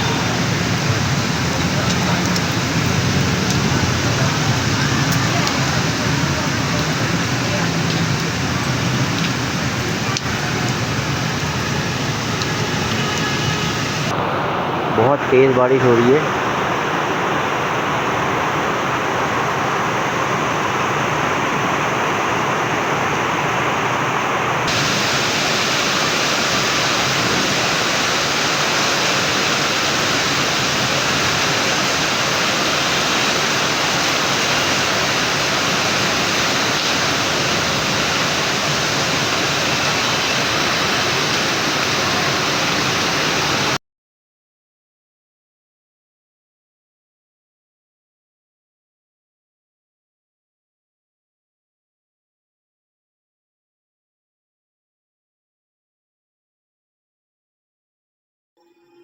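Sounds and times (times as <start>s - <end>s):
heavy rain pouring: 0.0s - 43.8s.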